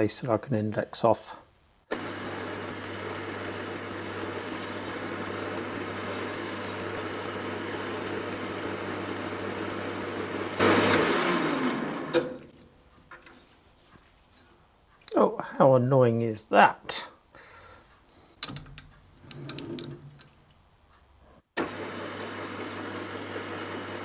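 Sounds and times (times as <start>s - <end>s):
metal lathe running: 2.0s - 12.5s.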